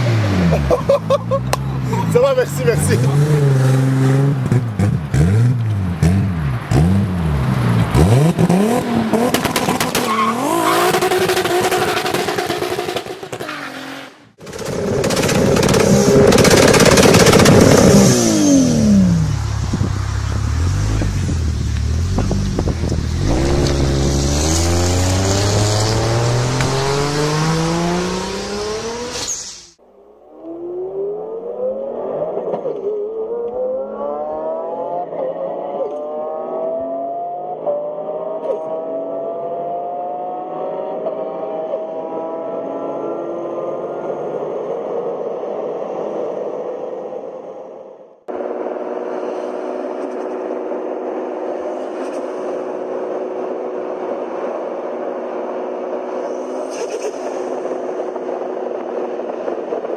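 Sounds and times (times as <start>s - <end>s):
sports car accelerating: 0.0s - 13.1s, 14.6s - 29.6s, 30.3s - 47.3s
car engines revving in blips: 2.8s - 13.4s, 14.4s - 29.8s
car pulling away: 14.6s - 29.8s.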